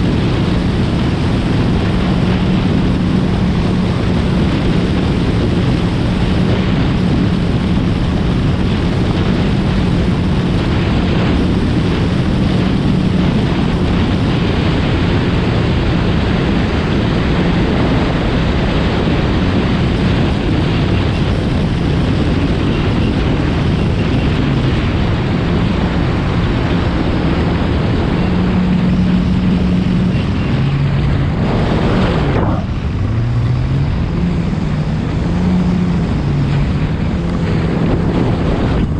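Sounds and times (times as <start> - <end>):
personal watercraft engine cruising: 0.0 - 38.9
wind on microphone: 0.0 - 38.9
water rushing: 25.0 - 38.9.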